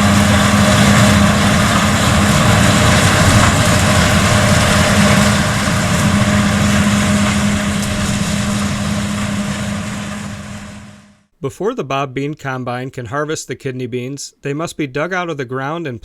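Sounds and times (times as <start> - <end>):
tractor and harvesting machinery running: 0.0 - 11.2.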